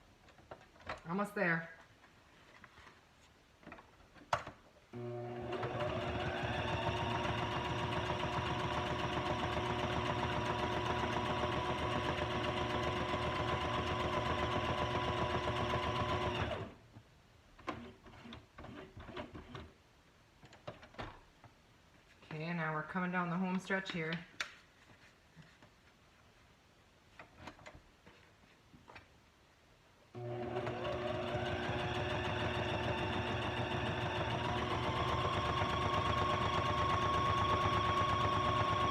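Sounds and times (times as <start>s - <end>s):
sewing machine motor whining: 5.0s - 16.7s, 30.2s - 38.9s.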